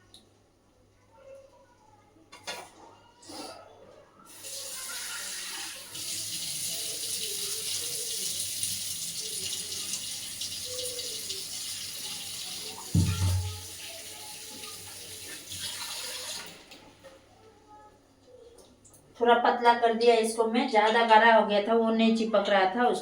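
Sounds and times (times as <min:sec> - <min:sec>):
water running: 0:04.3 - 0:17.0
brief knocks: 0:12.9 - 0:13.6.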